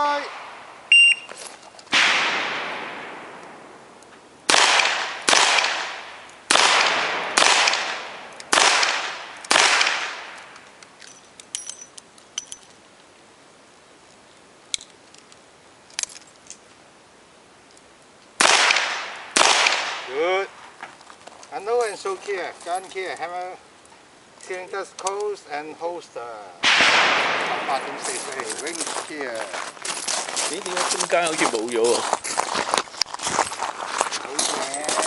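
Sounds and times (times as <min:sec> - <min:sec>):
revolver shots echoing: 0:01.9 - 0:03.9, 0:26.6 - 0:27.8.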